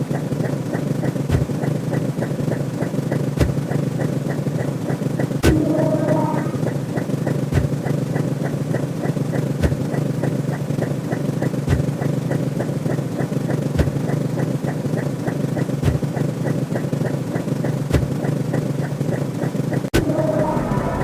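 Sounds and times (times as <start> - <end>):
low rumbling drone: 5.3 - 7.3, 19.9 - 21.0.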